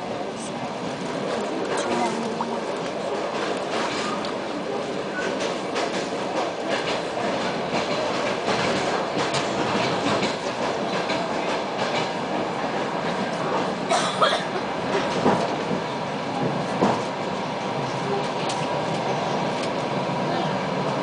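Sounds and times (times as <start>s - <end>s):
wheels rumbling on rail: 0.0s - 21.0s
rail joint clicks: 1.0s - 12.4s, 18.2s - 20.0s.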